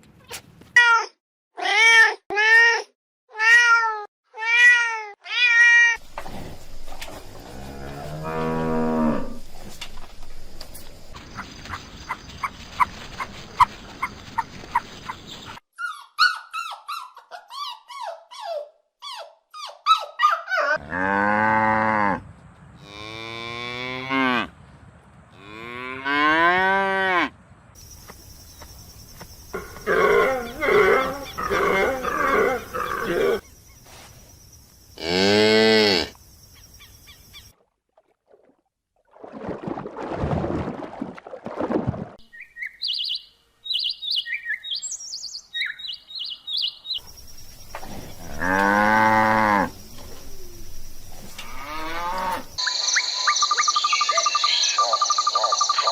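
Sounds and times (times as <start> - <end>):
cattle mooing: 7.4 - 10.0, 29.6 - 33.4, 47.8 - 52.6.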